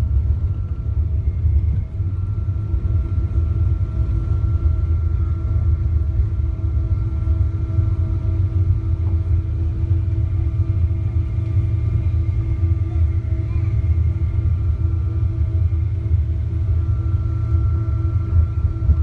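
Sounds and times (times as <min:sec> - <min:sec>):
airplane cabin rumble: 0:00.0 - 0:19.0
jet engine hum: 0:00.0 - 0:19.0.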